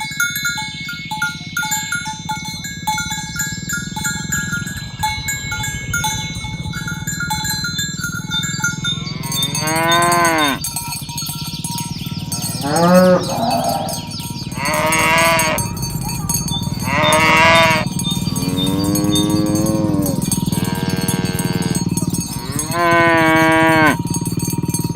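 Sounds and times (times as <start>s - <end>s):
cowbells clinking: 0.0s - 24.9s
cattle mooing: 8.7s - 10.7s, 12.1s - 24.1s.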